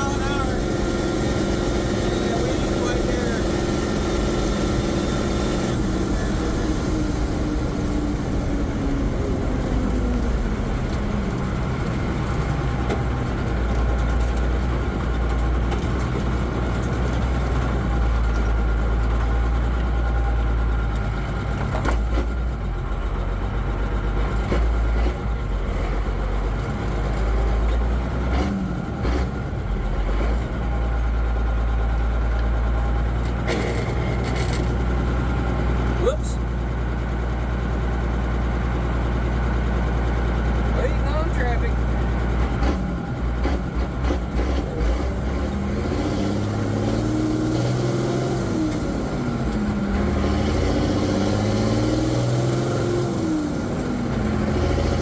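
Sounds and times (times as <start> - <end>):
truck diesel engine rumble: 0.0 - 55.0.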